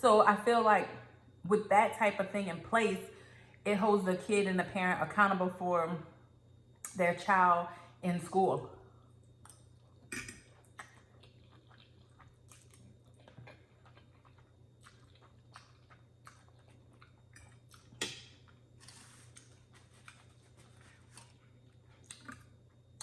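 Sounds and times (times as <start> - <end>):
chewing noodles: 9.4 - 23.0.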